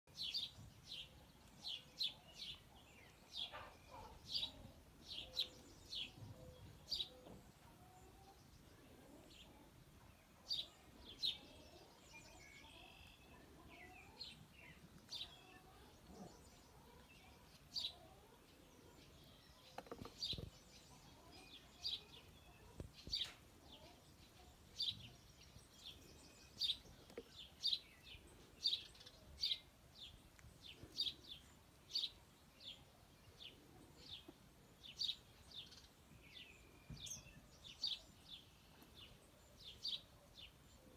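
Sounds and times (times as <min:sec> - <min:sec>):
faint outdoor background noise: 0:00.1 - 0:40.9
small bird chirping: 0:10.5 - 0:40.2.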